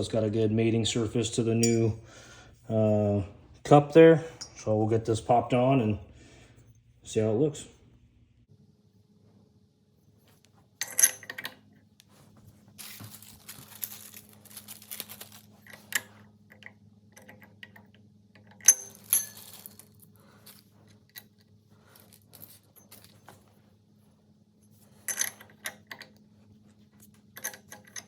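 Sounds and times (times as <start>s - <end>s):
faint steady hum: 0.0s - 28.0s
small metal parts clinking: 1.6s - 1.9s, 10.8s - 11.6s, 12.8s - 23.5s, 24.9s - 26.2s, 27.3s - 28.0s
rustling handling: 11.9s - 16.3s, 19.0s - 28.0s.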